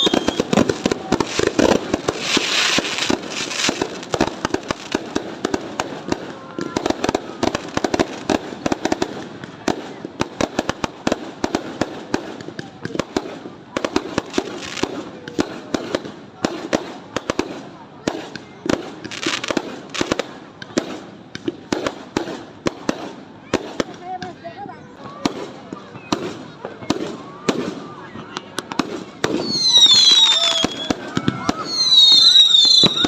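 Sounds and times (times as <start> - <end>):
loud crackling burst: 0.0 - 24.0, 25.2 - 33.0
fireworks and firecrackers banging: 0.0 - 33.0.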